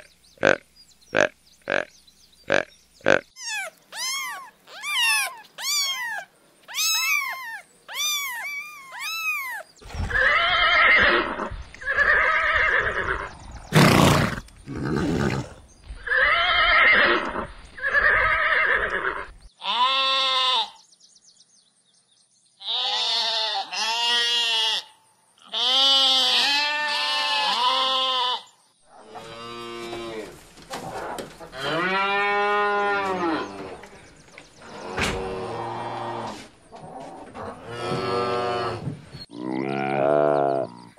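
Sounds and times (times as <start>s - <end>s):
rough animal calls: 0.0s - 19.4s
cat meowing: 3.4s - 9.7s
sheep bleating: 19.6s - 20.8s, 22.6s - 28.5s.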